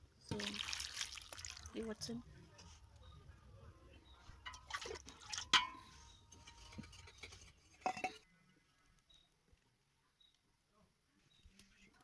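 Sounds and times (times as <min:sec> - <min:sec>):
metal utensils clinking on pot: 0:04.4 - 0:08.2.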